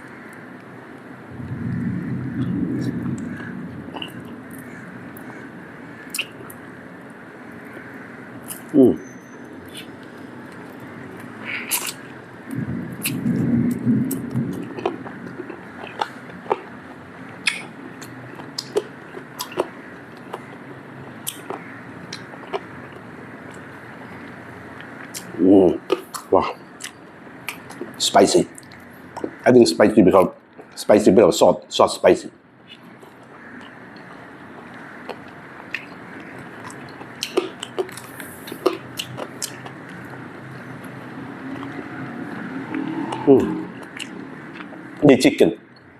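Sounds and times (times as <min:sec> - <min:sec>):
steady background noise: 0:00.0 - 0:45.9
chewing clicks and smacks: 0:06.1 - 0:06.6, 0:09.7 - 0:12.0, 0:13.0 - 0:16.7, 0:17.3 - 0:20.5, 0:21.2 - 0:29.3, 0:32.7 - 0:41.8, 0:43.8 - 0:44.8
person biting chicken: 0:11.5 - 0:12.0.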